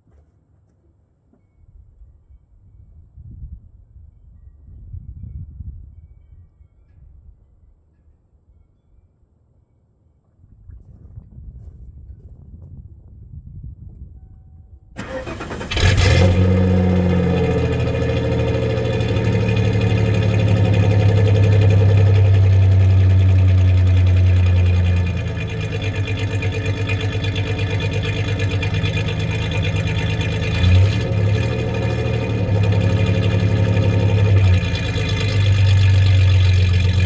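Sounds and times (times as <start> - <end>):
engine cranking and starting: 15.0 - 37.0
misfiring engine running: 15.0 - 37.0.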